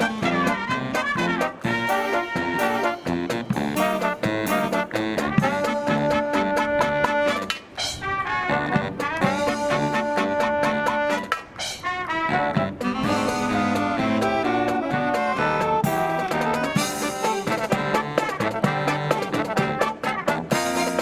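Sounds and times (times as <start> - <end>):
drum strokes: 0.0 - 7.9, 12.6 - 21.0
marching brass band playing: 0.0 - 21.0.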